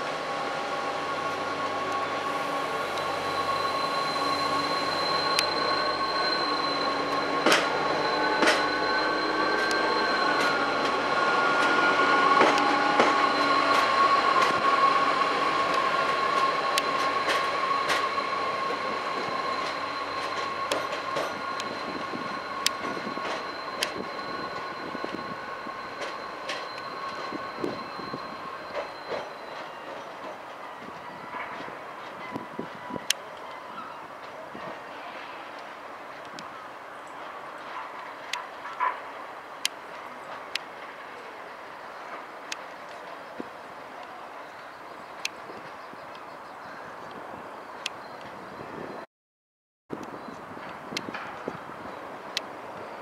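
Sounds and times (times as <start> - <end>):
railcar rolling past: 0.0 - 49.1, 49.9 - 53.0
wheels squealing: 0.5 - 35.5.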